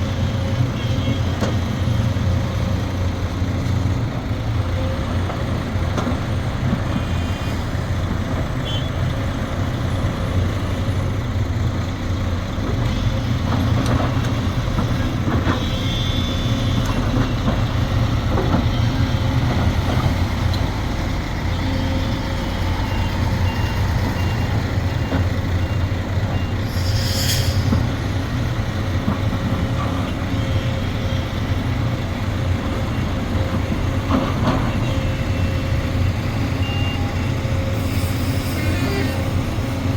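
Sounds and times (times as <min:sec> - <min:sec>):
excavator diesel engine running: 0:00.0 - 0:39.9
sharp hiss: 0:26.6 - 0:28.0.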